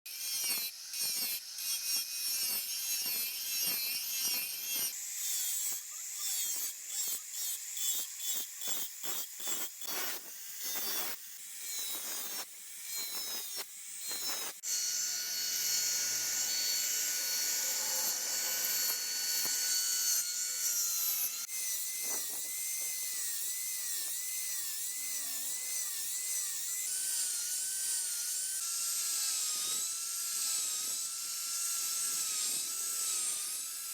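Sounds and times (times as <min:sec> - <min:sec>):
grinder grinding steel blade: 0:00.1 - 0:33.9.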